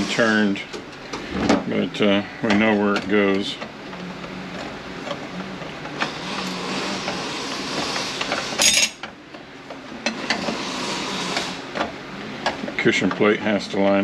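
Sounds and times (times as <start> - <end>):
steel plates clinking: 8.6 - 9.0.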